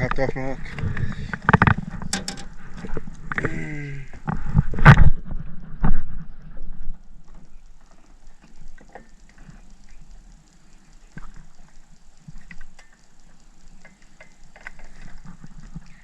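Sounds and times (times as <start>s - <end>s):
spinning reel ticking: 1.0s - 3.4s, 6.9s - 16.0s.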